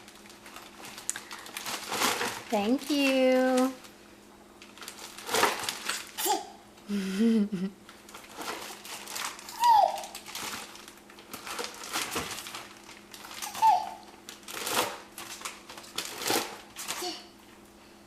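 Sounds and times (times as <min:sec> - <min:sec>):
crinkling and rustling in a drawer: 0:00.1 - 0:03.9, 0:04.6 - 0:06.1, 0:08.1 - 0:13.6, 0:14.3 - 0:17.0
baby babbling squeals: 0:09.5 - 0:10.2, 0:13.4 - 0:14.1.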